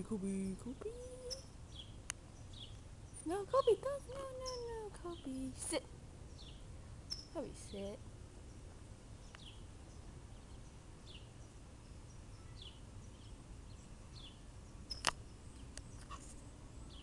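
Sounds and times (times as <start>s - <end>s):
low steady rumble: 0.0s - 17.0s
bird chirping: 0.1s - 17.0s
sharp click: 14.9s - 15.2s.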